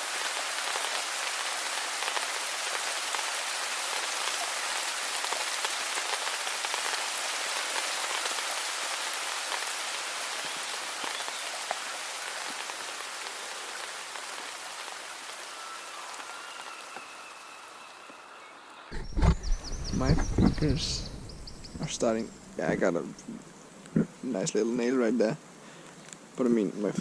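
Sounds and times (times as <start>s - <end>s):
steady rain hiss: 0.0s - 27.0s
raindrops ticking: 19.0s - 24.6s.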